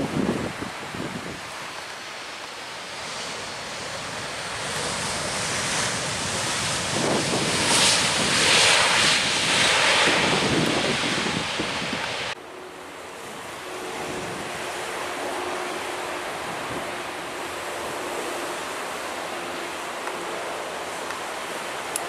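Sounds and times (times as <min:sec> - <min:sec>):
wind buffeting microphone: 0:00.0 - 0:01.8, 0:03.0 - 0:12.4, 0:13.3 - 0:18.1.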